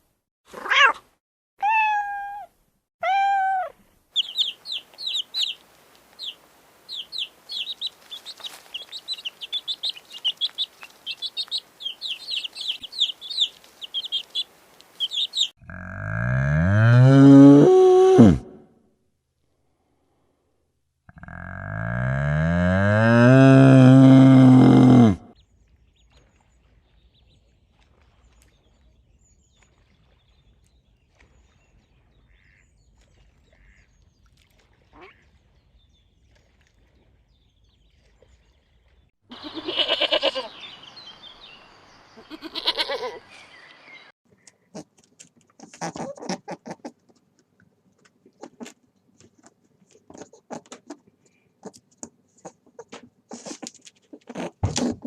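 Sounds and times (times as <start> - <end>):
ducklings peeping: 4.2 - 15.5.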